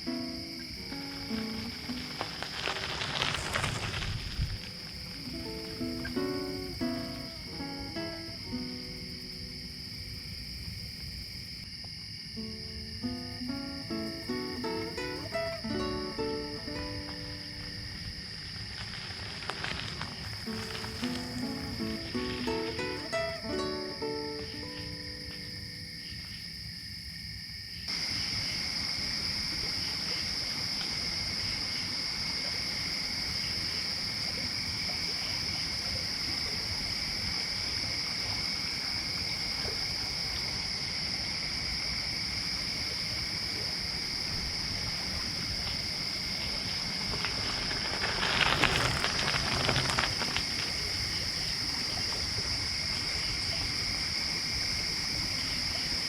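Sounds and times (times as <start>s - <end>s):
crickets chirping: 0.0s - 56.0s
bike tyres rolling over gravel: 0.3s - 8.2s, 13.8s - 25.7s, 44.6s - 54.3s
wind on microphone: 1.6s - 5.8s.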